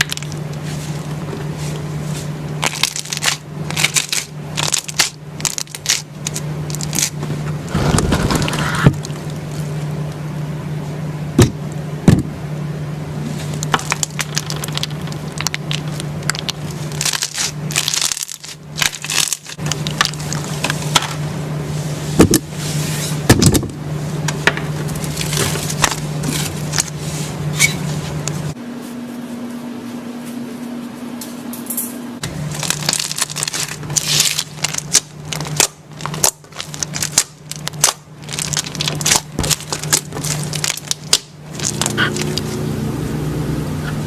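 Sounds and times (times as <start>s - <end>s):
low hum: 0.0s - 44.0s
slime crackling and popping: 2.6s - 9.5s, 13.6s - 20.9s, 32.5s - 42.4s.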